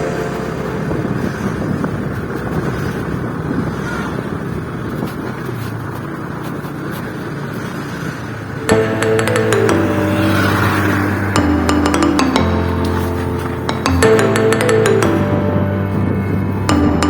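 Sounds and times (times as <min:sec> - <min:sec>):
motorcycle engine running: 0:00.0 - 0:07.4
wind over microphone: 0:00.0 - 0:08.6, 0:15.5 - 0:16.7.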